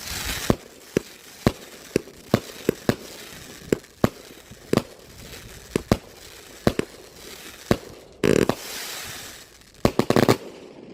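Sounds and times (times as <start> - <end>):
firework hiss: 0.0 - 10.7.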